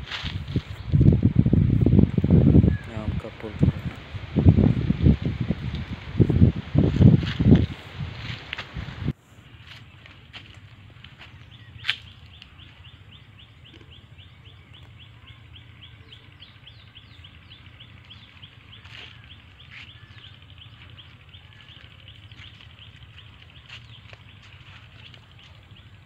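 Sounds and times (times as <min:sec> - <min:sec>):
faint low rumble: 0:00.0 - 0:26.0
small bird chirping: 0:09.5 - 0:26.0.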